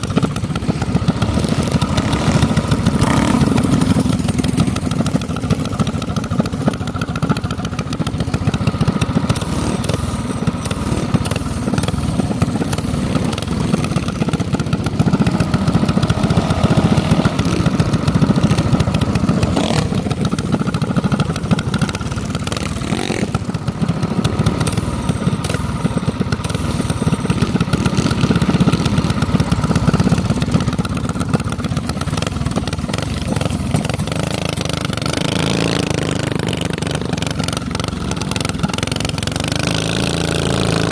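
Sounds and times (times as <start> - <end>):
minibike engine running: 0.0 - 40.9.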